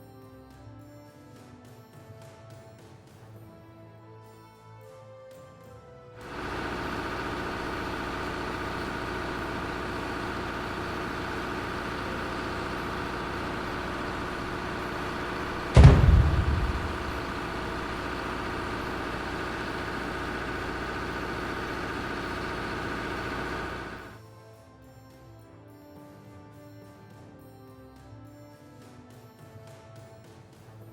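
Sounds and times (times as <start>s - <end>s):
heavy engine running: 6.2s - 24.2s
loud deep thud: 15.6s - 18.9s.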